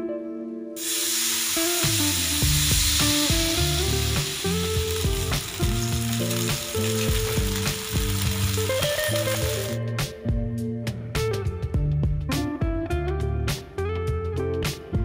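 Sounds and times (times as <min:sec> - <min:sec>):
background music: 0:00.0 - 0:15.0
batter sizzling on a hot griddle: 0:00.8 - 0:09.8.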